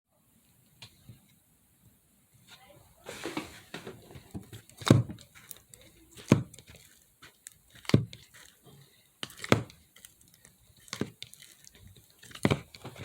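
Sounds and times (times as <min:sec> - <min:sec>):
hands squishing slime: 0:04.0 - 0:13.0.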